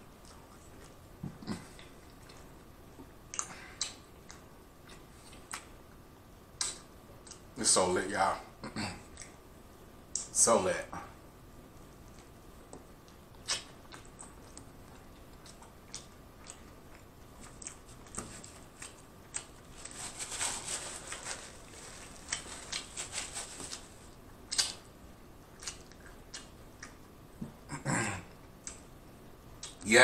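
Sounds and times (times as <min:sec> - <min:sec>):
wet chewing mouth smacks: 0:13.4 - 0:18.2.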